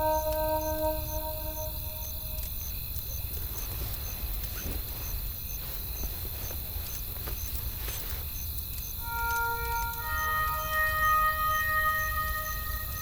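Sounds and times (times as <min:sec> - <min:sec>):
faint high chirp: 0:00.0 - 0:02.5, 0:09.0 - 0:13.0.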